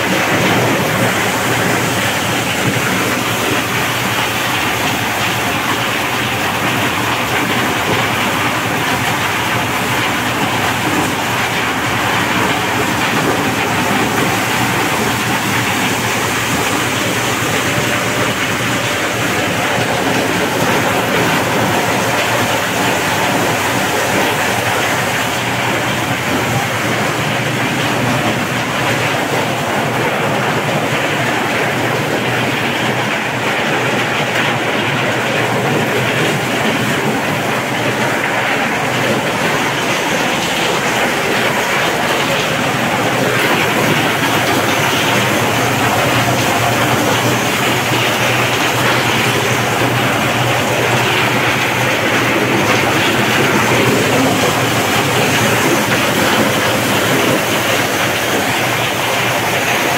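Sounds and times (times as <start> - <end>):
corn shelling machine running: 0.0 - 59.9.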